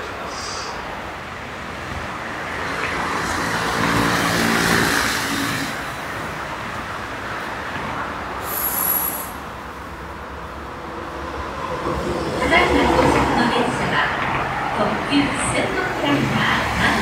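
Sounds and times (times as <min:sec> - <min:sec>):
electric train rushing: 0:00.0 - 0:17.0
thin high whistle: 0:08.4 - 0:09.4
air hiss: 0:08.4 - 0:09.5.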